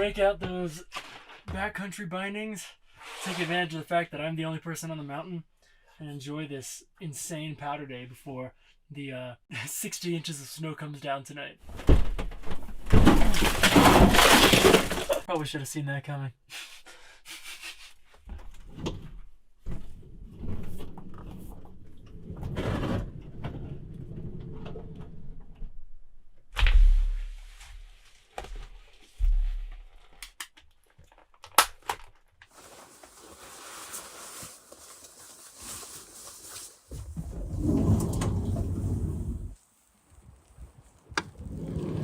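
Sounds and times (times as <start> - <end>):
knocks and thumps: 11.7 - 15.3, 28.5 - 30.0
rustling handling noises: 32.1 - 37.2.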